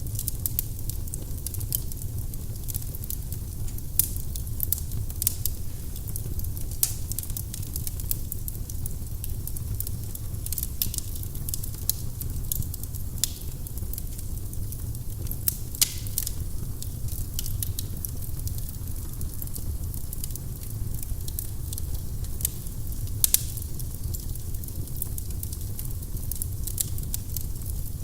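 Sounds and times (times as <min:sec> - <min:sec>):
low rumble of flames: 0:00.0 - 0:28.0
wood crackling and popping: 0:00.0 - 0:28.0.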